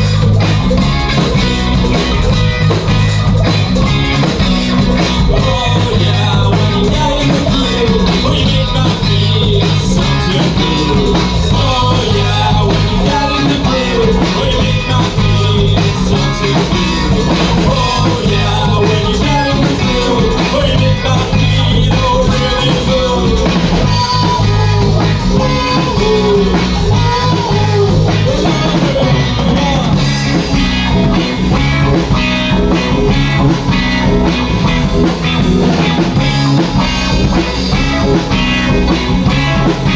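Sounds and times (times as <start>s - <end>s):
drum kit: 0.0s - 39.9s
guitar: 0.0s - 39.9s
person singing: 4.2s - 30.6s.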